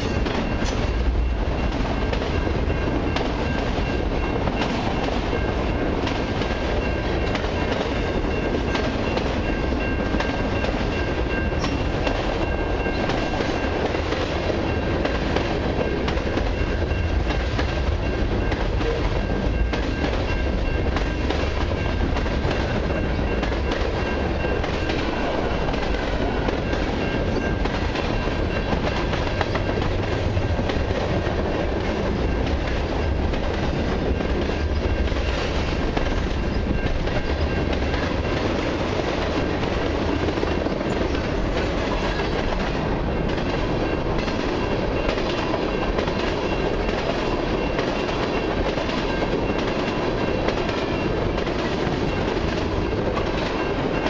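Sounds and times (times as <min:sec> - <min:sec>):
steel wheels rumbling on rail: 0:00.0 - 0:54.0
wheels clicking over rail joints: 0:00.0 - 0:54.0.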